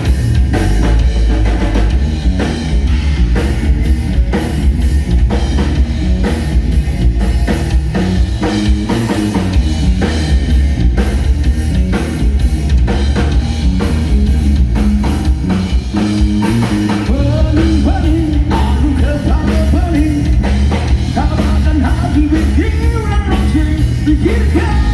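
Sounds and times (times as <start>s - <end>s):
bass guitar: 0.0s - 24.9s
drum kit: 0.0s - 24.9s
electric guitar: 0.0s - 24.9s
man singing: 17.1s - 20.5s, 21.1s - 24.9s.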